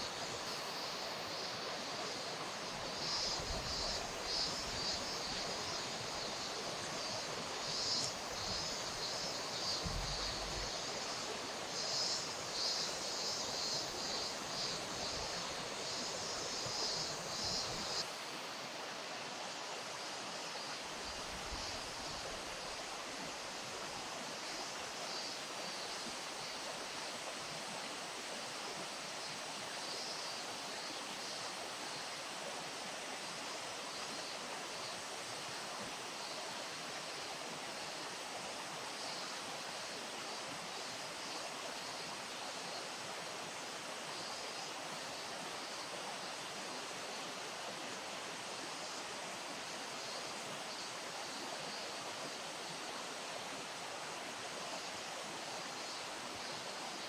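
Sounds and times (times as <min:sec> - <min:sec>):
river water rushing: 0:00.0 - 0:29.7.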